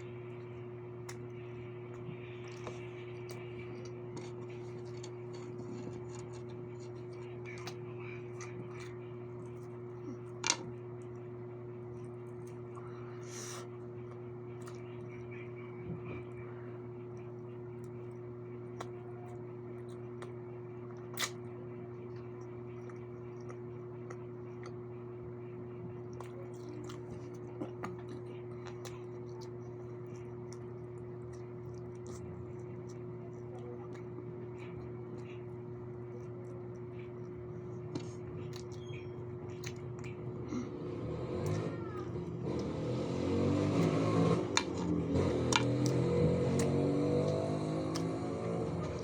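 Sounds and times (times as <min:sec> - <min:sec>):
chewing food: 0:00.0 - 0:49.0
steady electrical hum: 0:00.0 - 0:49.0
wet mouth clicks: 0:21.1 - 0:21.4.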